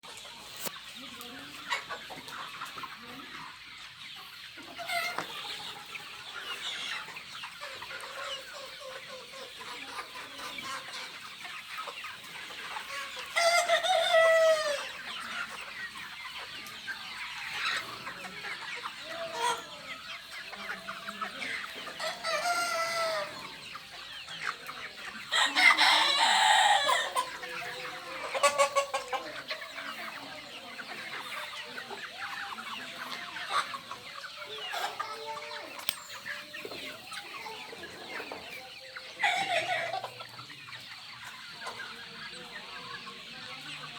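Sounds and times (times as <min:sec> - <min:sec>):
chickens clucking: 0:00.0 - 0:43.9
drawn-out chicken calls: 0:00.0 - 0:43.9.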